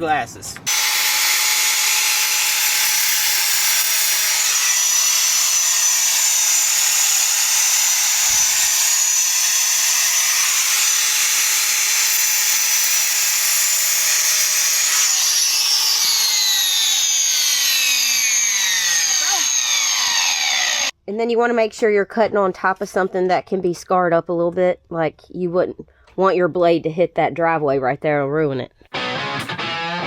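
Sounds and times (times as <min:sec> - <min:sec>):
angle grinder whining: 0:00.6 - 0:21.0.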